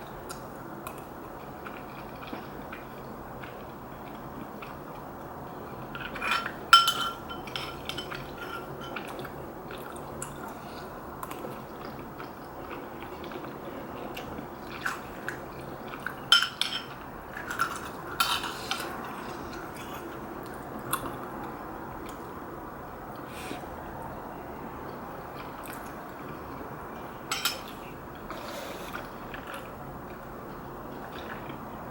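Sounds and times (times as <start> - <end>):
utensils clinking against bowl: 6.2 - 9.1, 16.3 - 18.9, 27.3 - 27.7.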